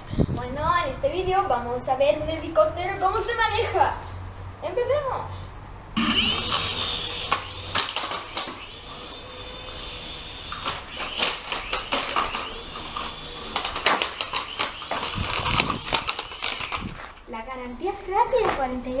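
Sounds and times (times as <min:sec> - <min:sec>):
knocks and clatters: 0:06.0 - 0:17.2
model helicopter motor whining: 0:06.0 - 0:17.3.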